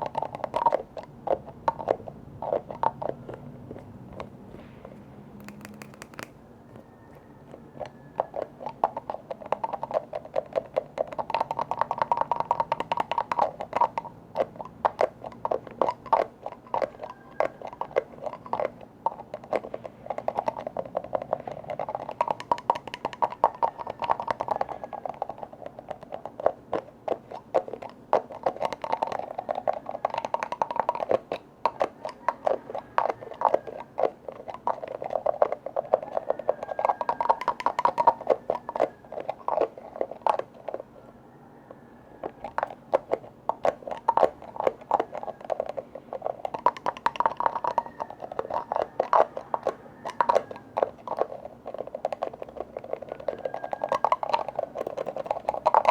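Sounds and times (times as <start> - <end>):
rapid tapping on a container: 5.4 - 6.4, 42.5 - 55.9.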